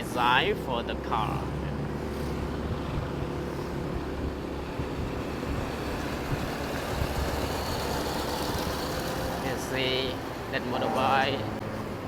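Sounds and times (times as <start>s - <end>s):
road traffic: 0.0s - 12.0s
wind rushing over microphone: 1.5s - 10.5s.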